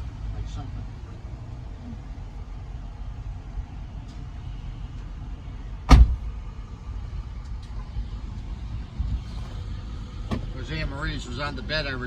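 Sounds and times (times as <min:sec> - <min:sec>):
car door shutting: 0:05.9 - 0:06.3, 0:09.2 - 0:10.6.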